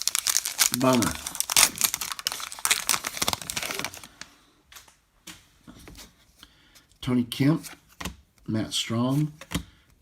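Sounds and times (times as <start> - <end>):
plastic wrapper crinkling: 0.0 - 4.3.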